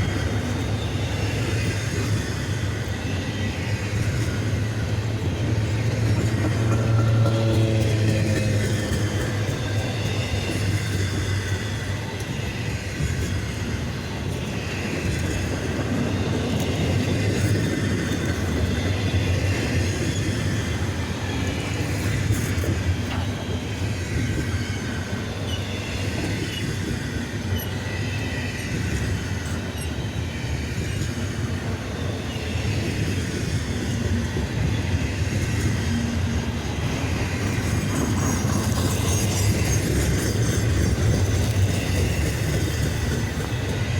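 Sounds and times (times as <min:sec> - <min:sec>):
freight train wheels clattering: 0:00.0 - 0:43.9.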